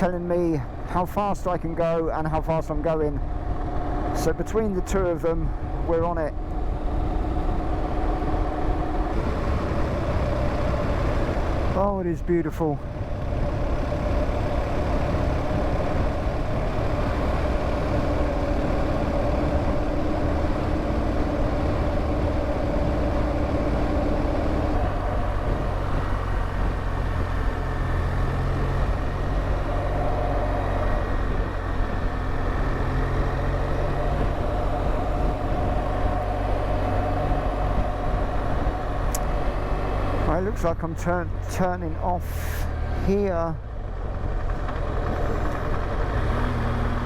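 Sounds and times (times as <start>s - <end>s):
motorcycle engine running: 12.8s - 47.0s
wind noise: 12.8s - 47.0s.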